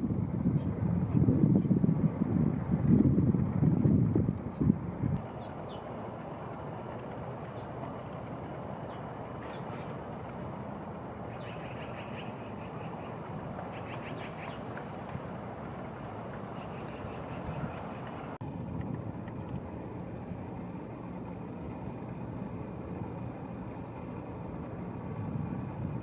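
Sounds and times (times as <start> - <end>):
rushing wind: 0.0 - 18.5
small birds chirping: 5.2 - 18.4.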